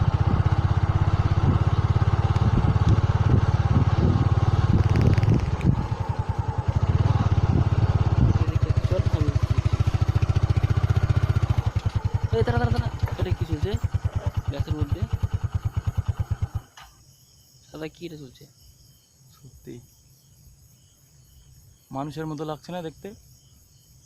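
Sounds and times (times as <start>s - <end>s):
motorcycle engine rumbling: 0.0s - 17.0s.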